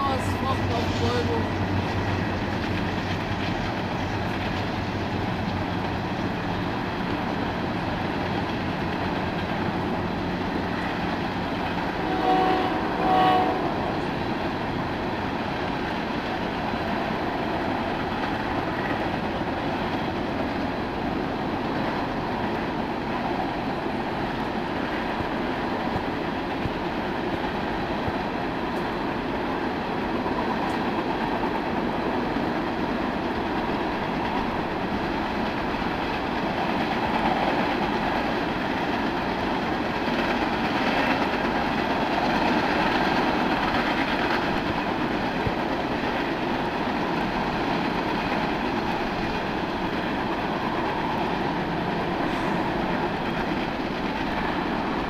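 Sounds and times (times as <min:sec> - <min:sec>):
train cars rumbling on rails: 0:00.0 - 0:55.0
train horn: 0:11.9 - 0:14.1.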